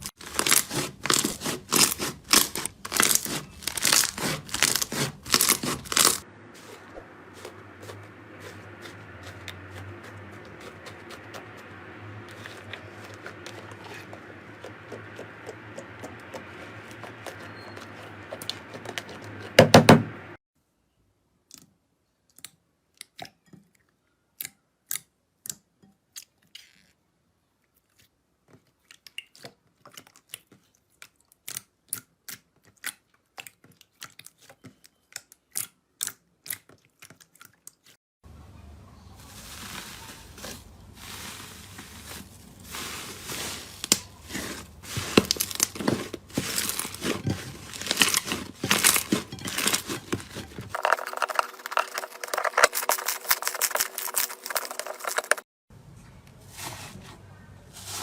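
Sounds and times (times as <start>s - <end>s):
slime crackling: 0.0s - 19.4s, 39.3s - 55.4s.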